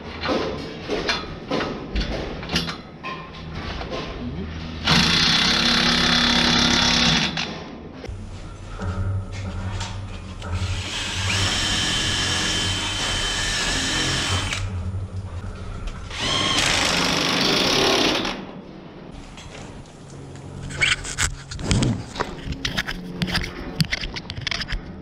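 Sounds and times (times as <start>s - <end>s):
cordless drill driving fasteners: 10.6s - 14.7s, 16.1s - 18.3s.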